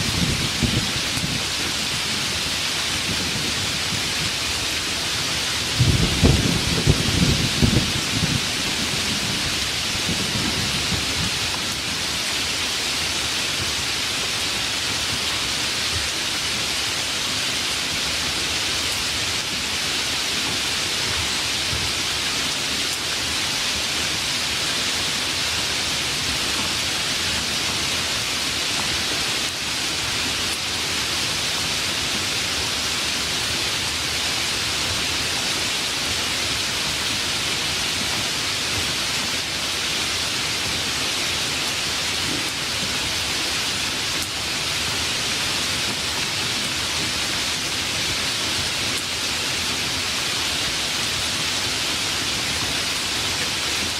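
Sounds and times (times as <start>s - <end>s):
heavy rain: 0.0s - 53.9s
thunder rumble: 5.7s - 11.4s.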